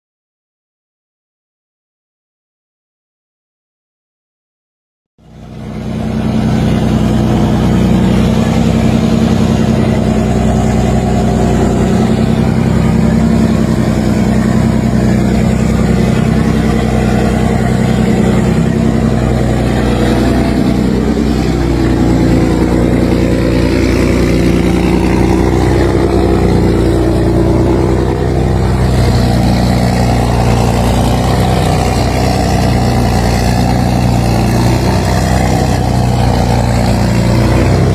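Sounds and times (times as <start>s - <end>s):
boat diesel engines droning: 5.2s - 37.9s.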